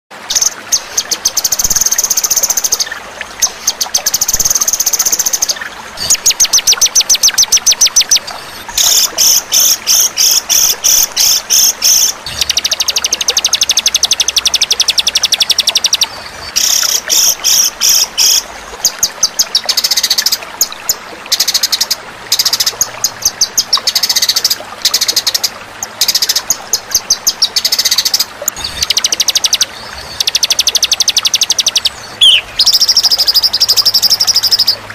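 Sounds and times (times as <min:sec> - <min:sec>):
songbird trills and chirps: 0:27.5 - 0:34.8.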